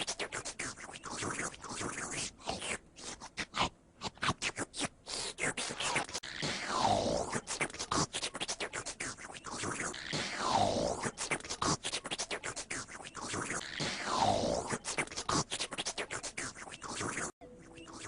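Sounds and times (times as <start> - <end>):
scratched looped sound sample: 6.2 - 7.2, 9.7 - 11.5, 13.3 - 15.3.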